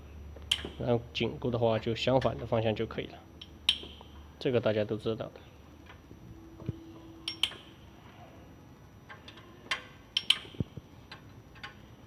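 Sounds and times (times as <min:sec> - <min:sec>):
metallic clicks of hand tools: 0:00.5 - 0:00.8, 0:07.3 - 0:07.7, 0:09.1 - 0:11.8.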